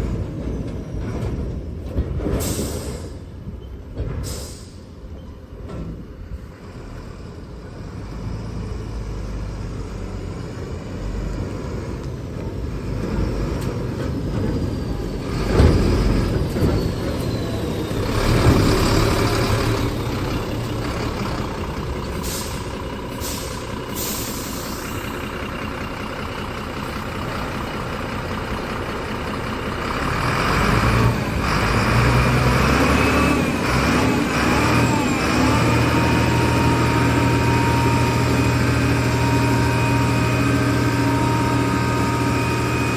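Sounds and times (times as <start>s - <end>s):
diesel truck engine running: 0.0s - 42.9s
air hissing bursts: 22.2s - 25.0s.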